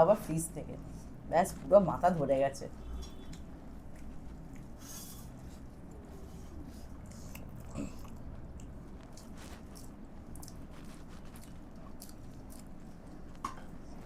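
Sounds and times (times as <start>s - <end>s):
faint low hum: 0.0s - 14.0s
person chewing food: 3.0s - 14.0s.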